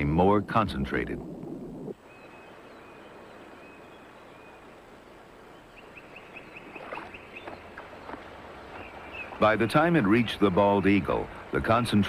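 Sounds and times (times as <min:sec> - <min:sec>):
small bird calling: 0:02.0 - 0:09.7.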